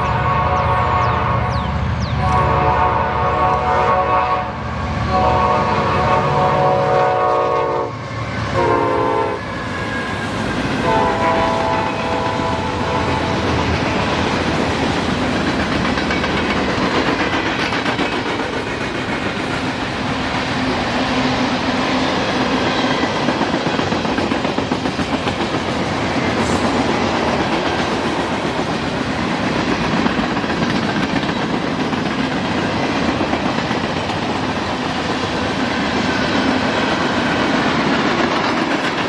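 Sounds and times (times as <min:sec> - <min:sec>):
locomotive air horn: 0:00.0 - 0:10.2, 0:10.8 - 0:13.5
wheels clacking over rail joints: 0:13.1 - 0:21.4, 0:22.2 - 0:39.0.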